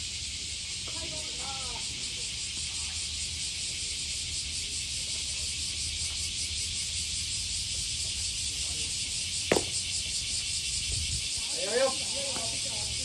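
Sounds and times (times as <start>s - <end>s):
cicada chorus buzzing: 0.0s - 13.0s
sharp crack: 9.5s - 9.9s.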